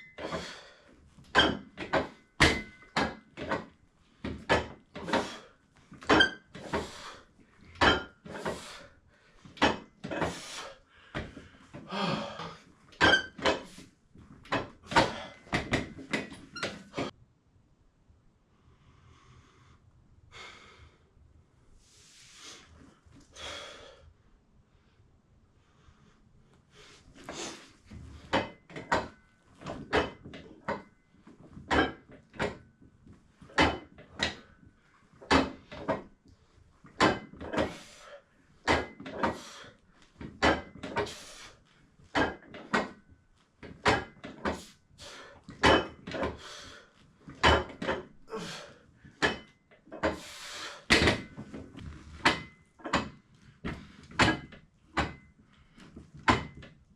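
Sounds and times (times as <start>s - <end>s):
gym equipment clunking: 0.0s - 8.8s, 9.5s - 10.6s, 11.2s - 17.2s, 27.3s - 36.2s, 36.9s - 56.9s.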